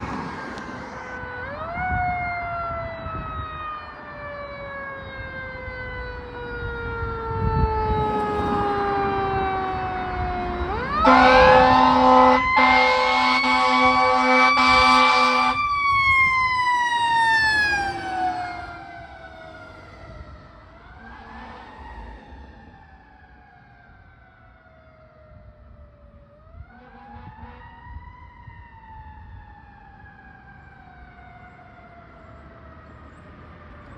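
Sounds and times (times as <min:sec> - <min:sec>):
mechanical siren wailing: 0:01.0 - 0:33.0
air horn blasting: 0:11.0 - 0:15.6, 0:26.7 - 0:27.7.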